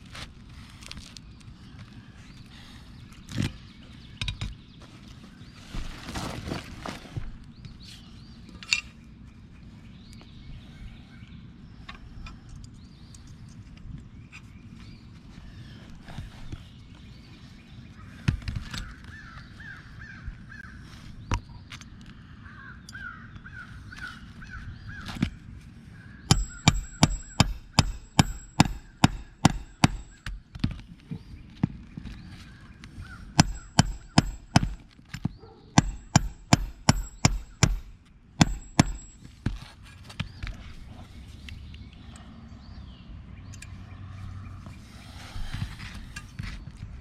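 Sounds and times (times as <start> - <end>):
nailing into roof shingles: 26.3 - 30.6, 33.4 - 39.7.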